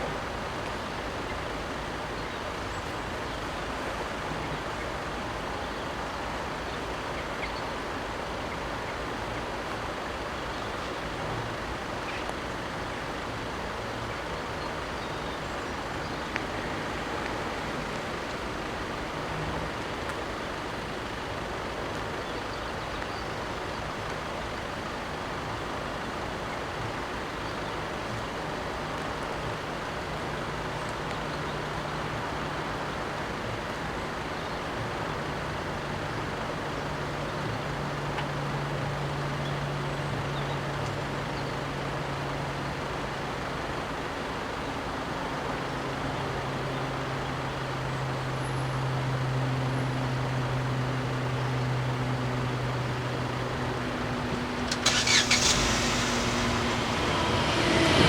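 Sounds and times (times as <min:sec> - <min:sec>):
road and traffic noise: 0:00.0 - 0:58.0
engine hum: 0:47.0 - 0:58.0.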